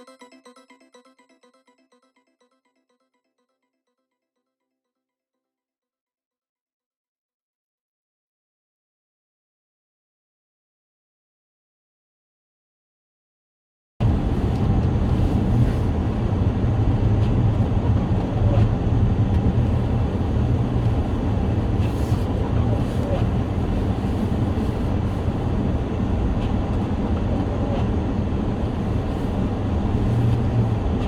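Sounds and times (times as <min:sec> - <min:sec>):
car engine and tyre rumble: 0:14.0 - 0:31.0.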